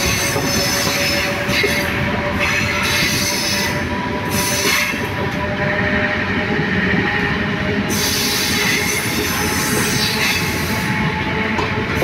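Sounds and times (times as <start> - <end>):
rumble of wheels on rail: 0.0 - 12.0.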